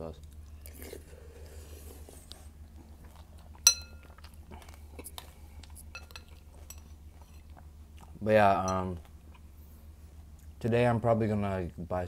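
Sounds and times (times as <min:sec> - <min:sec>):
chewing crunchy cereal: 0:00.0 - 0:09.6
metal spoon clinking on bowl: 0:03.6 - 0:04.0, 0:05.9 - 0:07.4, 0:08.6 - 0:08.9.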